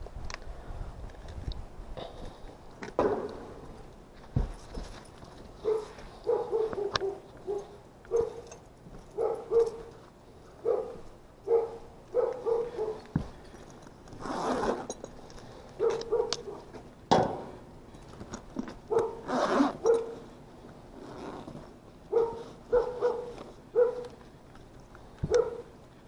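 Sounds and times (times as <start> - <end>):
dog barking: 5.6 - 8.5, 9.1 - 9.9, 10.6 - 13.1, 15.8 - 16.7, 18.9 - 20.2, 22.1 - 24.2, 25.3 - 25.7.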